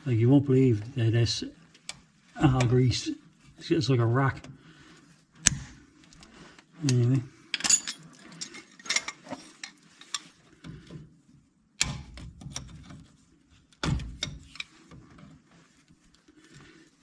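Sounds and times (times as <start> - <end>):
metal tools clinking: 6.9 - 10.2.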